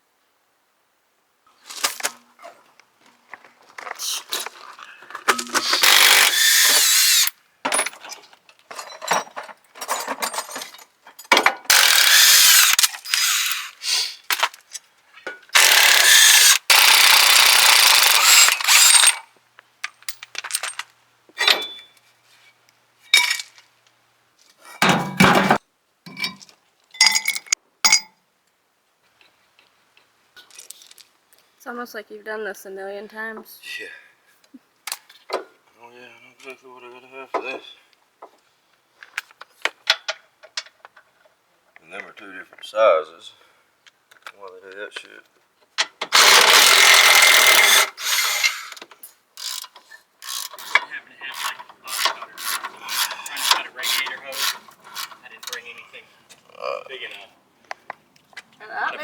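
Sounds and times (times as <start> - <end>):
metal tools clanking: 4.3 - 13.7, 18.0 - 19.2, 19.8 - 22.0, 24.7 - 28.1, 49.4 - 55.6
power tool running: 5.3 - 7.3, 11.7 - 13.8, 15.6 - 19.2, 46.1 - 48.8.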